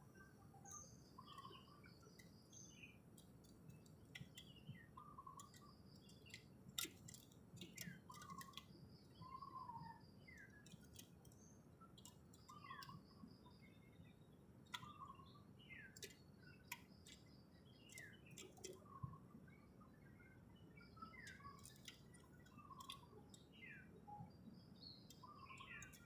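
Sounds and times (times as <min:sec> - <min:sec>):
sharp clicks: 0:02.1 - 0:04.8, 0:05.4 - 0:08.8, 0:21.1 - 0:23.4.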